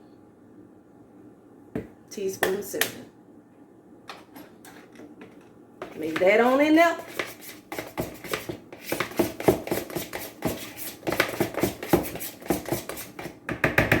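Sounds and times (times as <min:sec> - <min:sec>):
utensil stirring batter in bowl: 0:04.8 - 0:13.4.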